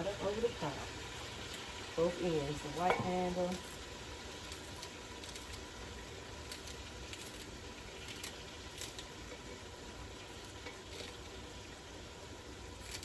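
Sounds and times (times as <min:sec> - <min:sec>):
pot hissing on stove: 0:00.0 - 0:13.0
knife cutting green onions: 0:02.7 - 0:11.5, 0:12.7 - 0:13.0.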